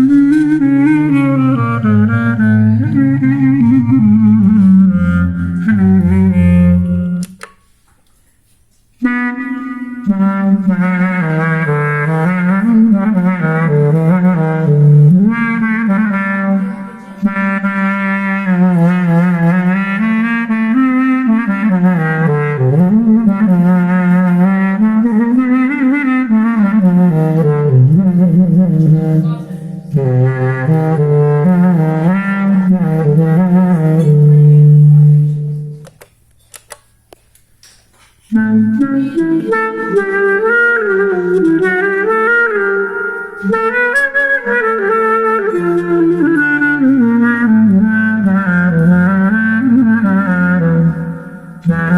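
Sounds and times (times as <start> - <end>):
clarinet-like solo melody: 0.0 - 7.5, 9.0 - 35.9, 38.3 - 51.9.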